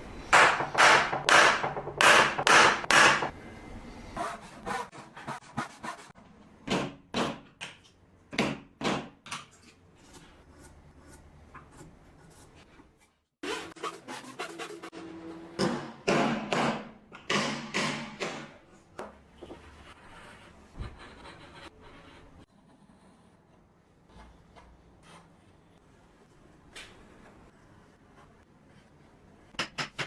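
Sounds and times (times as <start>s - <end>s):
hammer striking wood: 0.3s - 3.3s, 15.6s - 18.6s.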